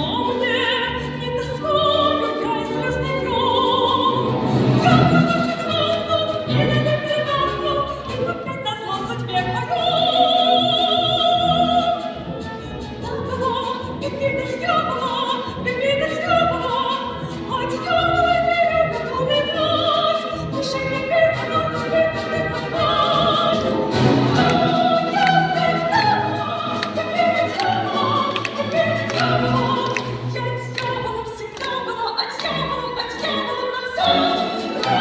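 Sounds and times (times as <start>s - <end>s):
woman singing with vibrato: 0.0s - 35.0s
orchestra playing: 21.7s - 35.0s.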